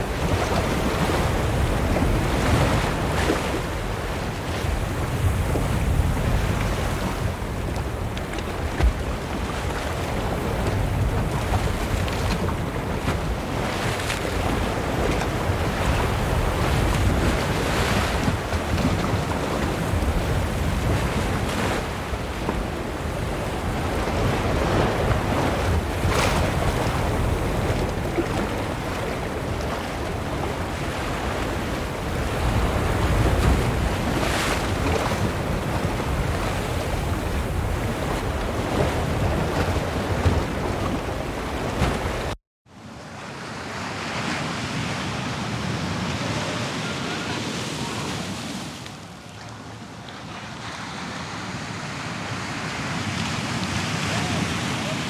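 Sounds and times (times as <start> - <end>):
wind buffeting microphone: 0.0 - 42.4
ocean waves washing in: 0.0 - 49.1.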